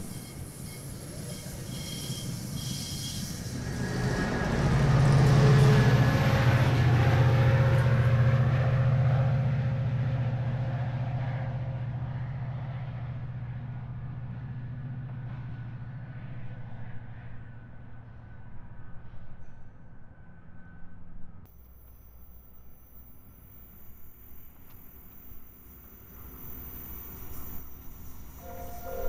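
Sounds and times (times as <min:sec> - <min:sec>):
train wheels rolling: 0:00.0 - 0:08.2, 0:21.5 - 0:29.0
diesel locomotive engine drone: 0:00.0 - 0:29.0.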